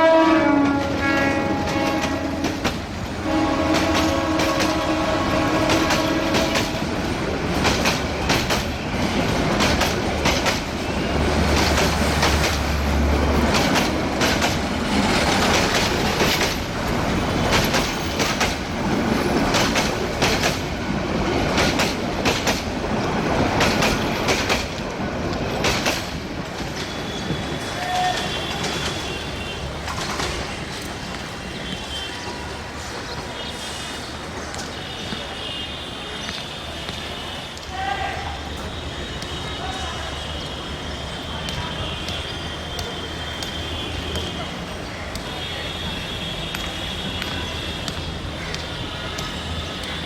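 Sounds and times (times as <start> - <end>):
train horn: 0.0 - 7.0, 26.9 - 30.5, 34.8 - 44.6, 45.2 - 48.0
train wheels clattering over rail joints: 0.6 - 29.2.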